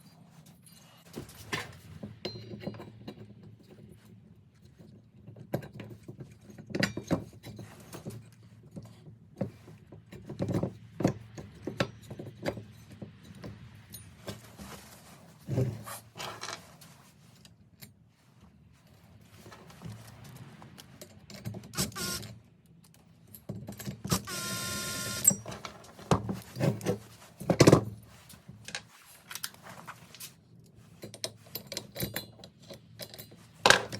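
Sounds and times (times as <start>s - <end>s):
metal parts and tools clinking: 23.2s - 30.3s, 30.9s - 33.9s.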